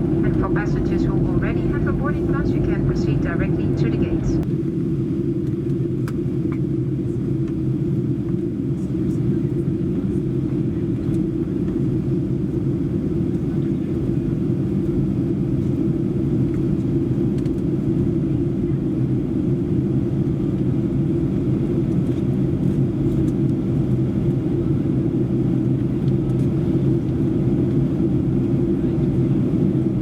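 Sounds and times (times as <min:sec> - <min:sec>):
airplane cabin engine rumble: 0:00.0 - 0:30.0.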